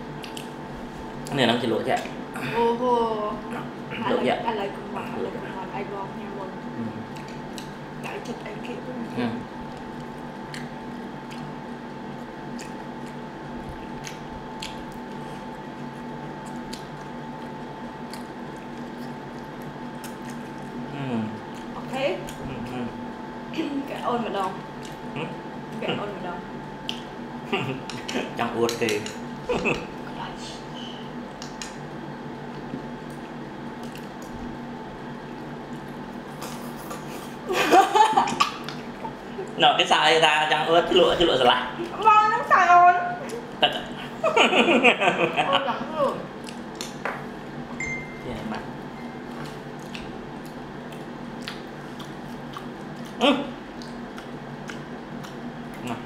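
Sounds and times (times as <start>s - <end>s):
steady faint hum: 0.0s - 56.0s
wet chewing and mouth smacks: 0.2s - 0.6s, 7.0s - 8.4s, 9.6s - 22.8s, 24.5s - 25.8s, 26.8s - 27.2s, 31.2s - 34.4s, 46.4s - 47.0s, 49.2s - 56.0s
soft mouth clicks: 31.3s - 31.8s, 51.4s - 53.2s.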